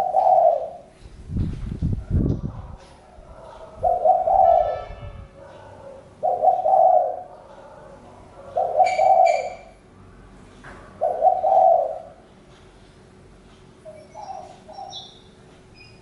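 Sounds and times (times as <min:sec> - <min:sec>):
dove cooing: 0:00.0 - 0:00.9, 0:02.5 - 0:09.8, 0:11.0 - 0:12.2, 0:13.9 - 0:15.1.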